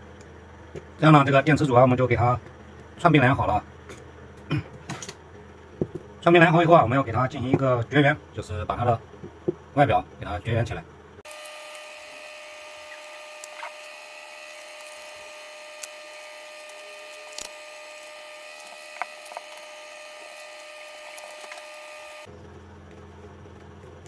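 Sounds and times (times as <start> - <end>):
small motor tool whirring: 11.2 - 22.3.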